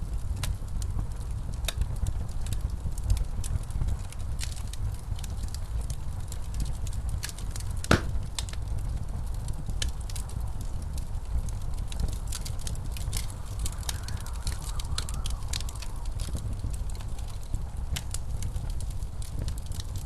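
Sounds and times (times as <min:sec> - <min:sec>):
snowstorm wind rumbling: 0:00.0 - 0:20.0
wood fire crackling and popping: 0:00.0 - 0:20.0.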